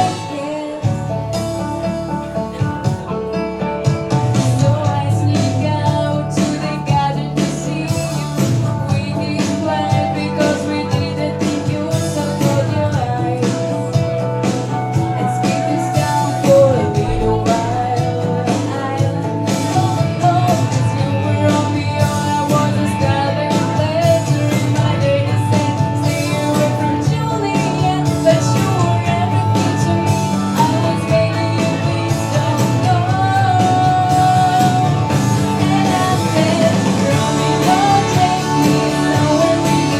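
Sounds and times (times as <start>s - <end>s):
person singing country song: 0.0s - 39.9s
instrumental backing with beat: 16.8s - 18.7s.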